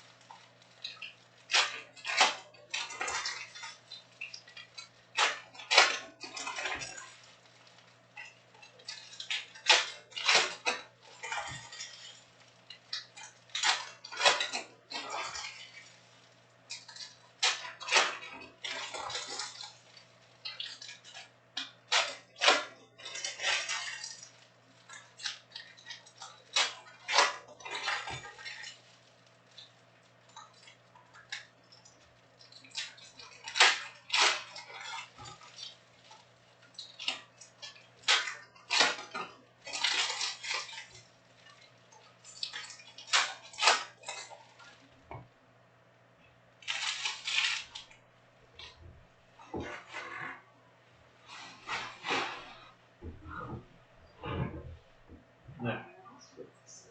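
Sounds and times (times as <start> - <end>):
crinkling and rustling: 0.0 - 45.4, 46.3 - 55.8
foil card packs being torn: 46.6 - 47.9
steady low hum: 47.9 - 56.9.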